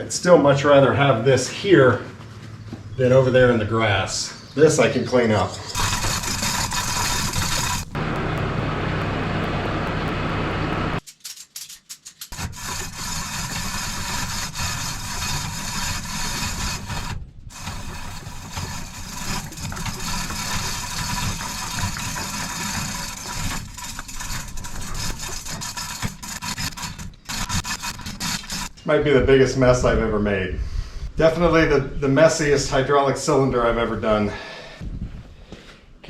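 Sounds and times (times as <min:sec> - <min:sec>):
rubbing and scraping: 0:05.0 - 0:28.8.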